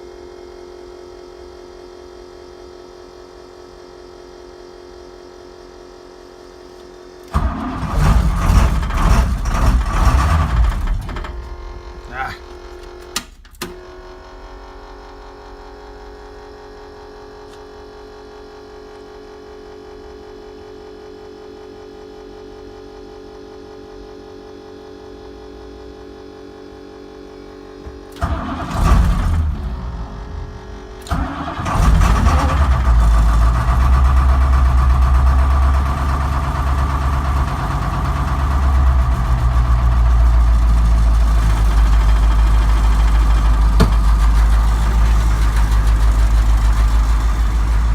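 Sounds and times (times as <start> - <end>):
bus engine cranking and idling: 7.2 - 15.1, 27.9 - 47.9
steady hum: 10.6 - 16.9, 26.6 - 32.1.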